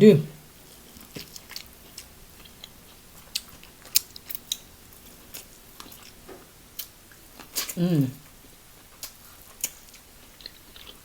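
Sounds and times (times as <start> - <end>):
crab shells cracking: 3.3 - 4.7.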